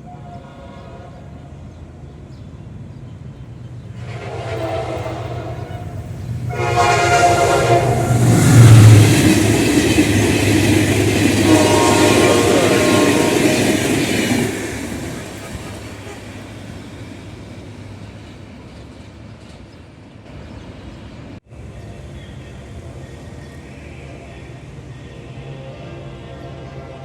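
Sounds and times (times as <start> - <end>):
locomotive horn blasts: 0.0 - 1.5, 4.0 - 9.0, 11.1 - 14.5, 25.4 - 27.0
locomotive engine rushing: 2.2 - 27.0
train wheels on rails: 2.7 - 25.6.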